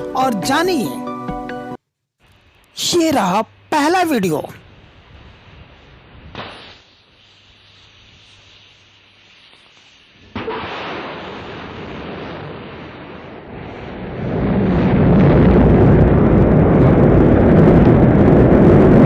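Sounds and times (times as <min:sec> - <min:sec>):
rocket engines rumbling: 0:10.2 - 0:19.0.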